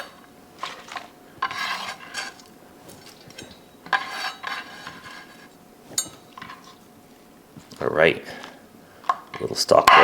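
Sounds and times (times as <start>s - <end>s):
shredded vegetables rustling in bowl: 0.0s - 3.4s
bowl and utensil clinks: 5.9s - 6.6s.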